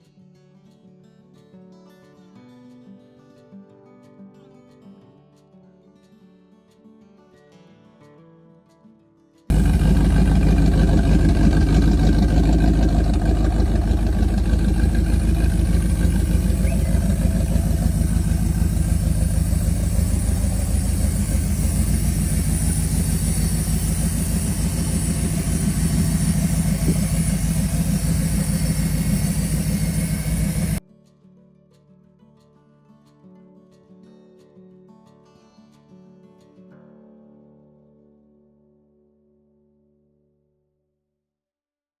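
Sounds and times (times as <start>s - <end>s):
car engine idling: 9.5s - 30.8s.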